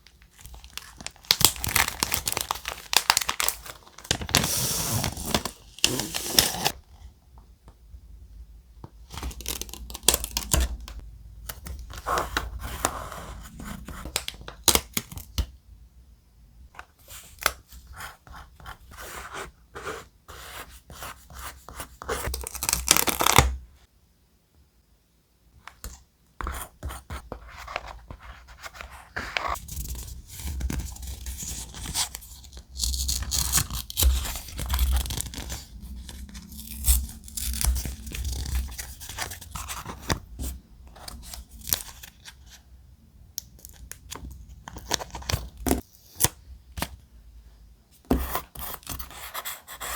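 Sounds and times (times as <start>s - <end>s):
thick paper being torn: 4.3s - 6.8s.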